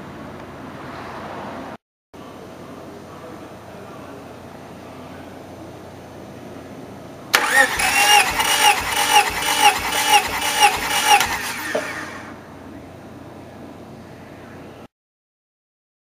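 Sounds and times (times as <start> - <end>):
starter motor cranking engine: 7.4 - 12.4.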